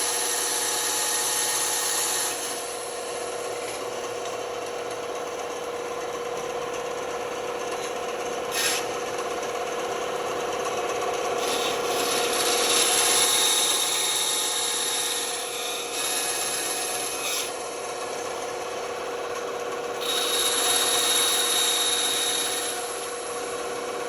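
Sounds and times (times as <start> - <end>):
saw blade cutting wood: 0.0 - 4.0, 7.8 - 9.5, 10.2 - 24.0
band saw humming: 8.5 - 24.0.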